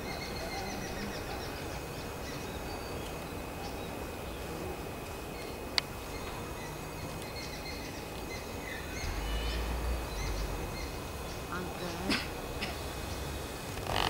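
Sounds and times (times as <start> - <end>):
steady background noise: 0.0 - 14.0
faint bird chirps: 5.3 - 12.3
low rumble: 8.6 - 13.6.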